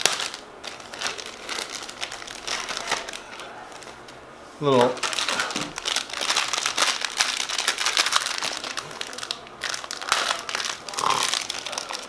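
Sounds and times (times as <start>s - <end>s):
plastic packaging crinkling: 0.0s - 4.1s, 4.8s - 12.0s.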